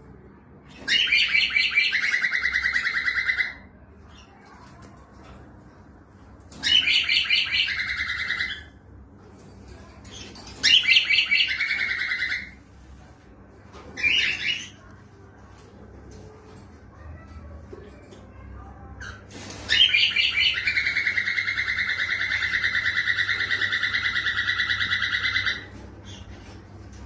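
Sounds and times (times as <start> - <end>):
cockatiel singing: 0.8 - 3.6, 6.5 - 8.7, 10.1 - 12.6, 14.0 - 14.9, 19.0 - 26.4.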